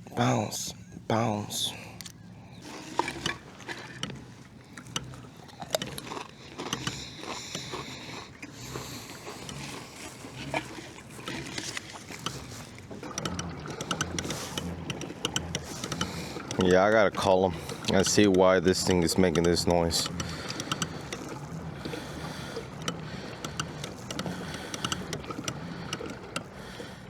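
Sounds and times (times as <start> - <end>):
pedal drive clicks and knocks: 2.8 - 7.9, 8.7 - 27.0.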